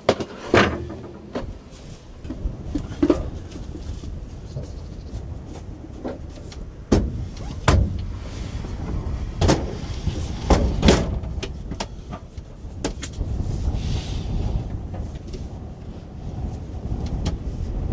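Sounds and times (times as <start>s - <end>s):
strong wind rumbling: 0.0s - 17.9s
knocks and thumps: 6.0s - 8.1s, 8.8s - 13.2s.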